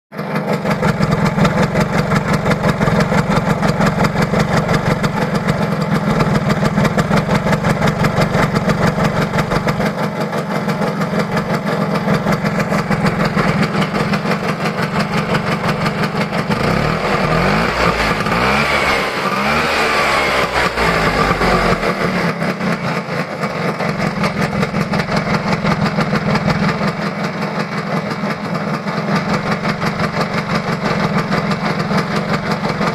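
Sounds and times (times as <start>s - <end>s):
scooter engine idling: 0.1s - 32.9s
rising and falling whine: 16.6s - 22.4s.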